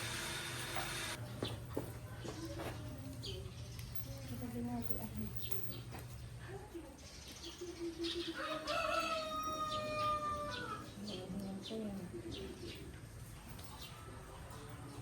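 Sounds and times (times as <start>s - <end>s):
rooster crowing: 8.4s - 10.8s.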